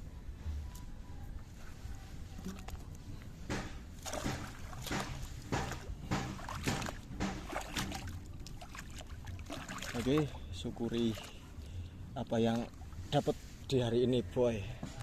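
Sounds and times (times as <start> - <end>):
low steady rumble: 0.0 - 15.0
water splashing in strokes: 3.5 - 11.5.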